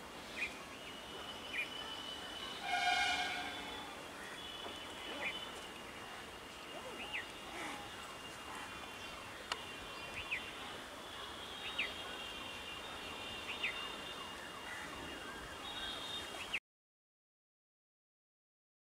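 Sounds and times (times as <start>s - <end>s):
outdoor noise: 0.0s - 16.6s
faint high whine: 0.4s - 5.6s
bird calling: 1.3s - 5.6s.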